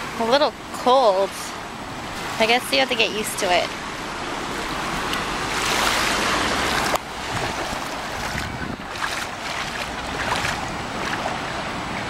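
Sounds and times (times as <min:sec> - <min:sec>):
waves washing on shore: 0:00.0 - 0:12.0
wind on microphone: 0:04.3 - 0:12.0.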